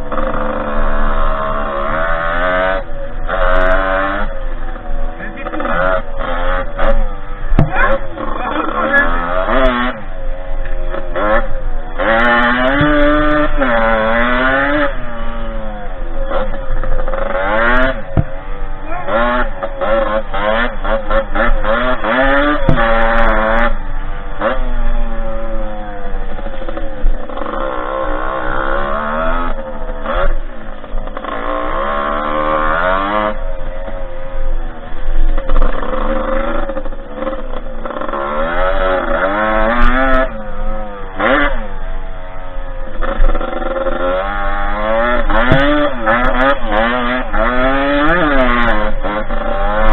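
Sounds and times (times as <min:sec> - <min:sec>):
two-stroke dirt bike engine revving: 0:00.0 - 0:49.9
sharp knocks: 0:07.5 - 0:07.8, 0:18.1 - 0:18.4, 0:22.6 - 0:23.0, 0:45.4 - 0:45.8.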